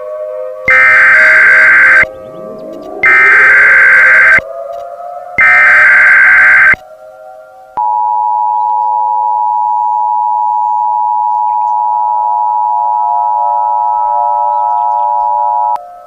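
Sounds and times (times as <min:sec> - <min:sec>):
faint steady tones humming: 0:00.7 - 0:02.1, 0:03.0 - 0:04.4, 0:05.4 - 0:06.8
loud two-tone beep: 0:00.7 - 0:02.1, 0:03.0 - 0:04.4, 0:05.4 - 0:06.8.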